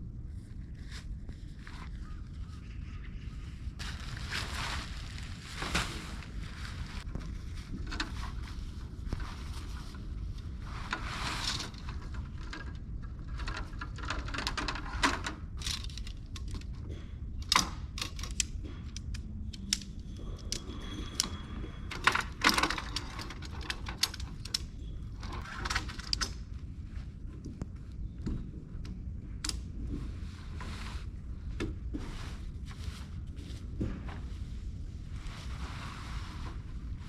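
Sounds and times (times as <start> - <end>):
steady low rumble: 0.0 - 22.4, 23.4 - 37.0
rustling: 0.3 - 16.7
gear clicks and knocks: 10.8 - 26.4.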